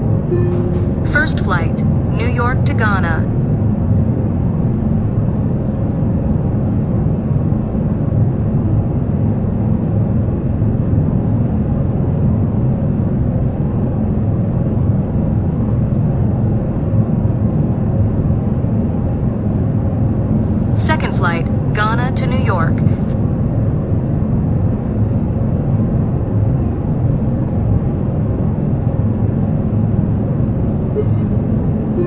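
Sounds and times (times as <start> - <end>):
jet airliner rumble: 0.0 - 3.3.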